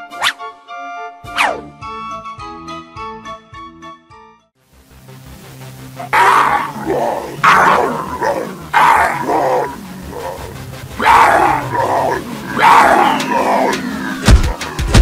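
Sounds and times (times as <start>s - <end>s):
loud animal-like cries: 6.0s - 14.5s.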